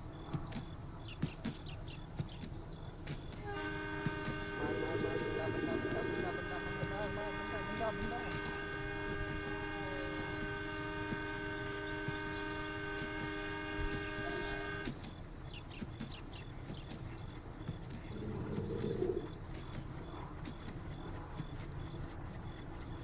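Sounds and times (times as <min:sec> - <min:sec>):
low train rumble: 0:00.0 - 0:23.0
train horn chord: 0:03.3 - 0:15.0.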